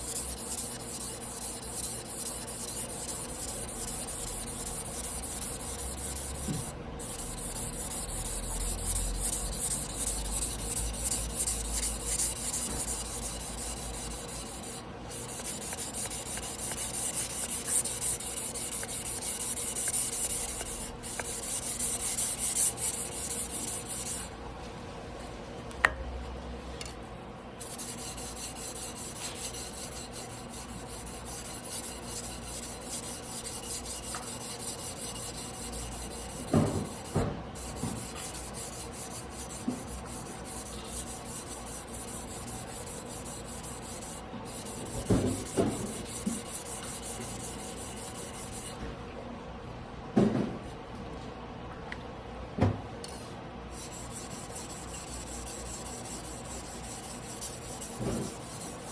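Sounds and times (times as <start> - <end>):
knife scraping on whetstone: 0.0 - 24.3, 27.6 - 48.8, 53.8 - 58.9.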